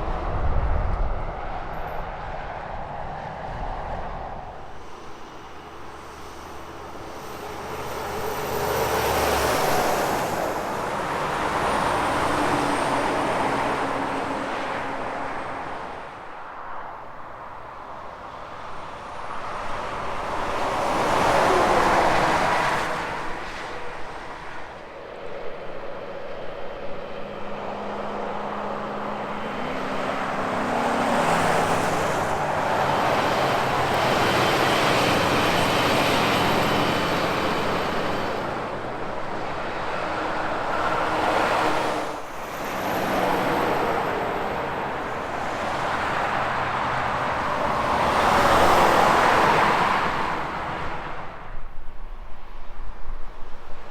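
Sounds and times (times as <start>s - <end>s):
highway traffic passing: 0.0s - 53.9s
heavy truck engine drone: 19.9s - 51.6s.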